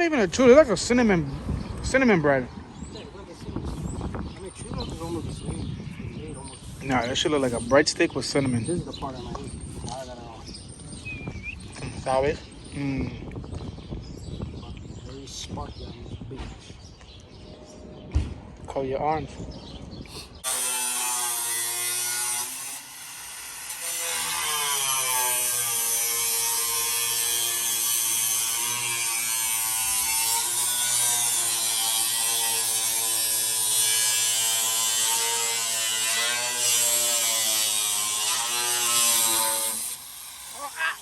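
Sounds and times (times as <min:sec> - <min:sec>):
angle grinder cutting sheet metal: 0:20.4 - 0:41.0.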